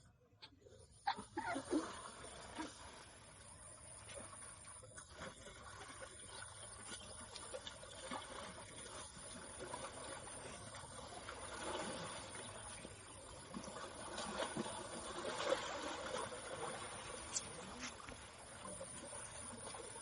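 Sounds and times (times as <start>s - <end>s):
moving water splashing: 1.1s - 20.0s.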